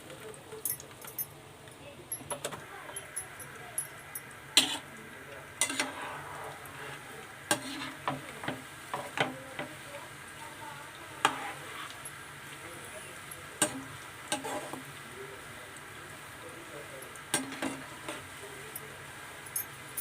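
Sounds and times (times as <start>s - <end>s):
food sizzling in hot oil: 0.0s - 20.0s
utensil knocking and scraping pan: 4.6s - 4.9s, 5.6s - 6.2s, 6.8s - 9.8s, 11.2s - 12.0s, 13.6s - 14.8s, 17.4s - 18.2s.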